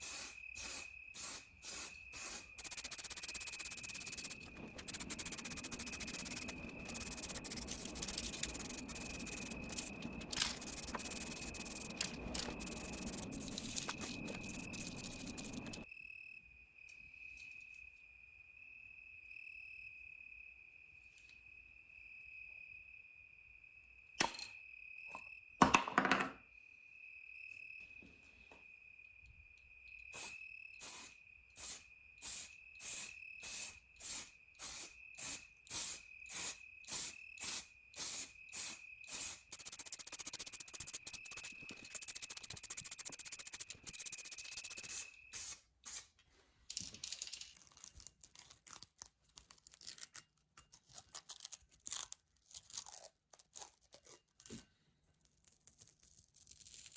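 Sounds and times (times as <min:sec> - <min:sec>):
aerosol spray can hissing: 0:00.0 - 0:15.8, 0:30.2 - 0:46.1
steady high-pitched trill: 0:02.4 - 0:15.9, 0:38.2 - 0:45.2.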